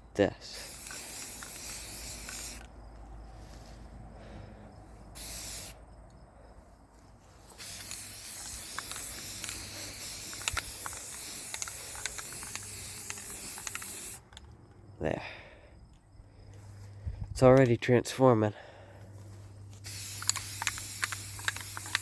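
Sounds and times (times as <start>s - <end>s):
spray paint can hissing: 0.5s - 2.8s, 5.1s - 5.8s, 7.4s - 14.4s, 19.8s - 22.0s
small ticks and spits: 0.5s - 3.8s, 7.4s - 14.5s, 19.7s - 22.0s.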